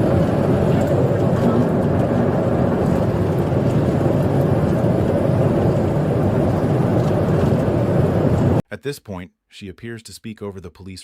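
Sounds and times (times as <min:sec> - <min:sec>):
car road and engine noise: 0:00.0 - 0:08.6.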